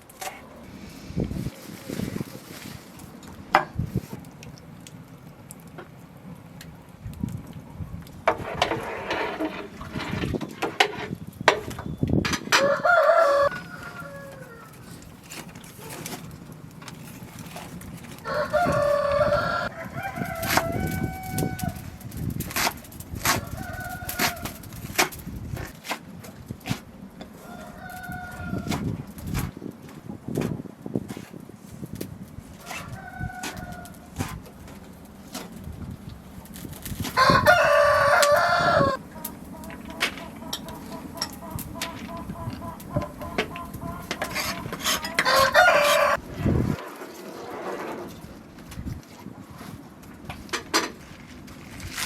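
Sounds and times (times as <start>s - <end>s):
rooster crowing: 12.6s - 14.9s, 18.2s - 21.9s, 23.4s - 24.6s, 27.4s - 28.8s, 32.6s - 34.1s, 37.2s - 46.2s
chicken clucking: 37.2s - 46.2s.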